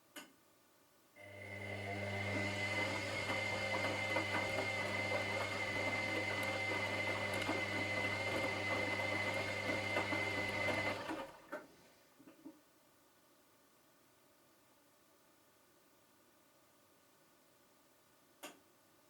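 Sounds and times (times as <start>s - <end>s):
washing machine motor running: 1.2s - 11.5s.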